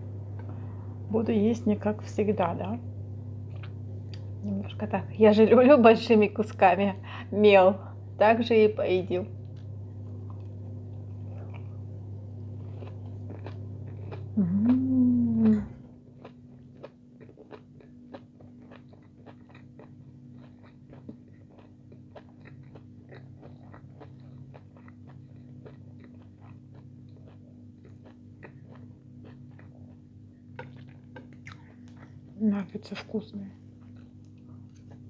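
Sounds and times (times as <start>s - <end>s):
faint steady hum: 0.0s - 35.0s
chewing crunchy food: 3.4s - 4.4s, 9.3s - 35.0s
person humming mmm: 14.3s - 15.9s.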